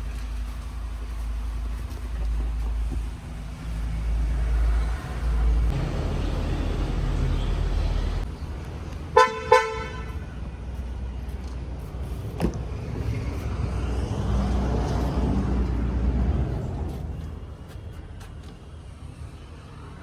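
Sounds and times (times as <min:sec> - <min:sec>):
vehicle horn honks: 0:09.2 - 0:10.2.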